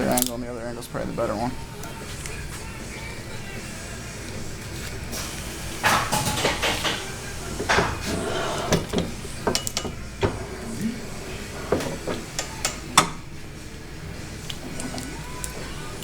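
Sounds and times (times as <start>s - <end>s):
metal parts clanking: 0.0s - 0.4s.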